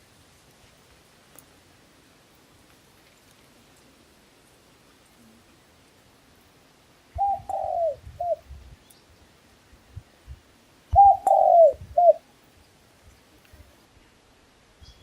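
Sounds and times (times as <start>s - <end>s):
dove cooing: 7.2s - 8.4s, 10.9s - 12.3s.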